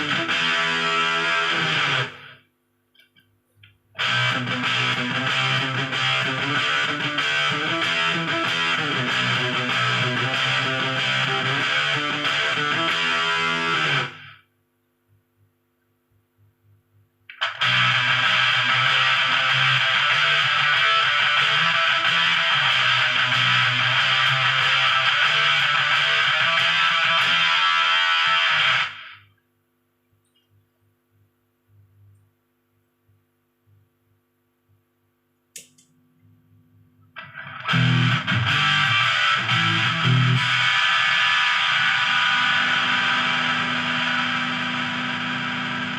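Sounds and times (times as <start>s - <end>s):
distorted electric guitar riffs: 0.0s - 2.4s, 4.0s - 14.5s, 17.3s - 29.3s, 37.1s - 45.9s
faint amp hum: 0.0s - 45.9s
click: 35.4s - 36.0s.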